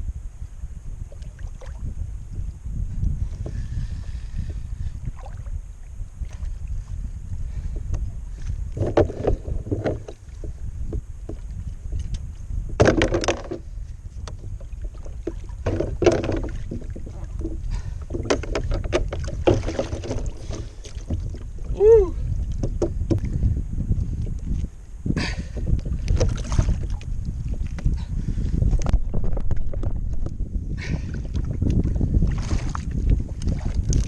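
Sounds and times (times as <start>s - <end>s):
wind rumble on microphone: 0.0s - 34.0s
water splashing around kayak: 1.0s - 34.0s.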